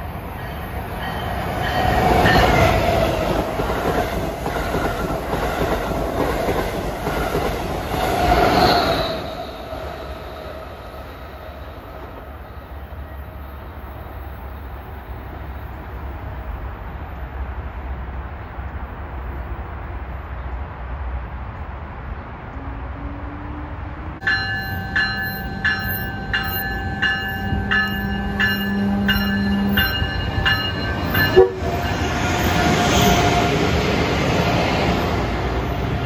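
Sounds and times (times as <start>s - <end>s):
train rumbling: 0.0s - 36.0s
bell ringing: 24.2s - 32.1s.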